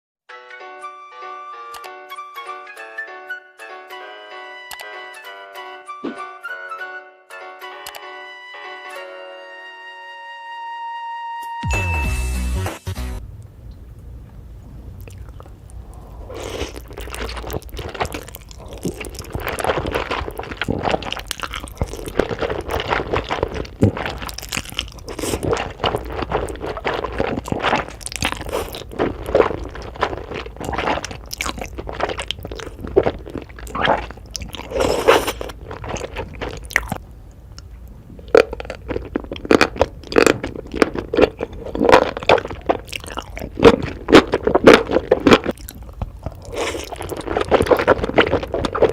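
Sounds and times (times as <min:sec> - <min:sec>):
chewing and biting noodles: 0:15.0 - 0:37.0, 0:37.6 - 0:48.9.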